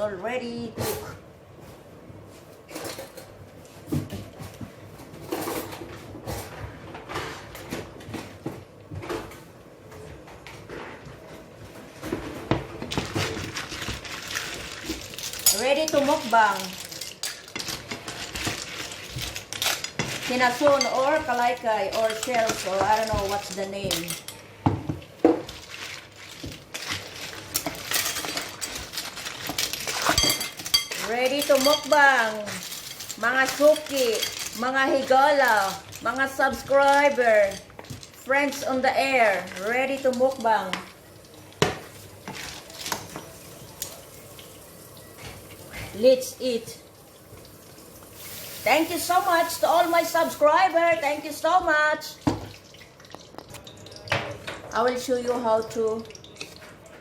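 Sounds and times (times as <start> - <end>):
dishes and cutlery clinking: 15.0 - 25.6, 26.4 - 36.0
dishes and pans clattering: 26.9 - 35.8.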